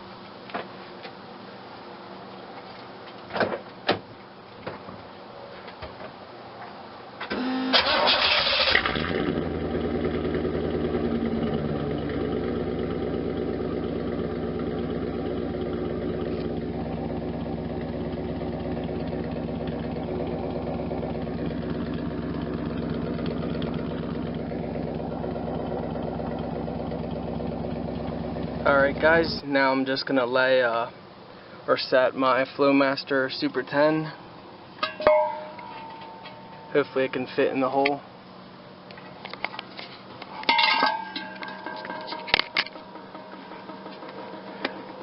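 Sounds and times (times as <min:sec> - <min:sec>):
car engine starting and idling: 0:07.2 - 0:29.7, 0:41.2 - 0:45.0
engine cranking: 0:07.3 - 0:12.4, 0:14.8 - 0:29.4, 0:41.4 - 0:45.0.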